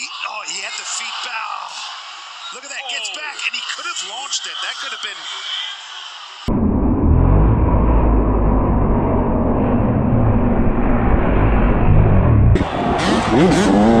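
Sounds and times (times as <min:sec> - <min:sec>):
motocross bike engine revving: 0:11.8 - 0:14.0.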